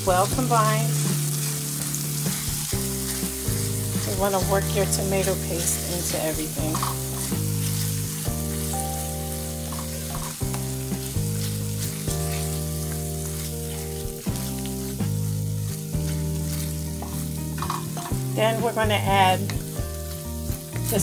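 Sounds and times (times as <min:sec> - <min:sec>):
music of sustained low chords: 0:00.0 - 0:21.0
sofrito sizzling in a pot: 0:00.0 - 0:21.0
wooden spoon stirring and scraping: 0:00.6 - 0:08.0, 0:09.6 - 0:18.5.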